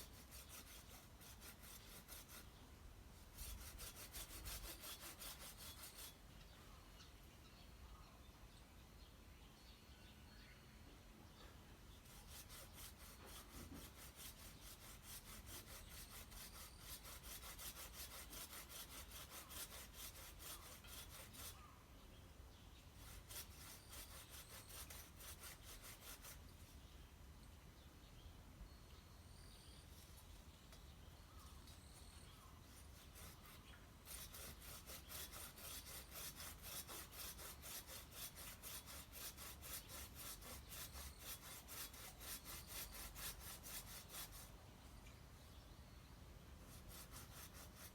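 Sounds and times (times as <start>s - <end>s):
hand saw cutting wood: 0.0s - 2.5s, 3.3s - 6.2s, 12.0s - 21.6s, 23.0s - 26.4s, 32.7s - 44.5s, 46.7s - 47.9s.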